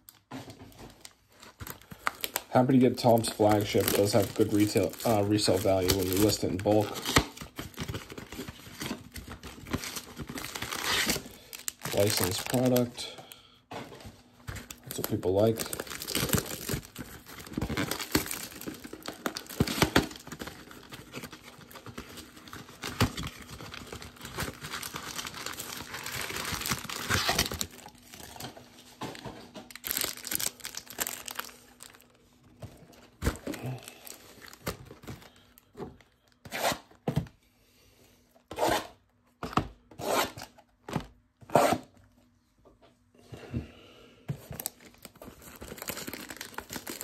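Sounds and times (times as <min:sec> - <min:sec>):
card packs crinkling: 0:00.0 - 0:36.5, 0:44.4 - 0:47.0
packaging being torn open: 0:01.6 - 0:13.0, 0:14.6 - 0:28.4, 0:29.7 - 0:32.0, 0:44.6 - 0:47.0.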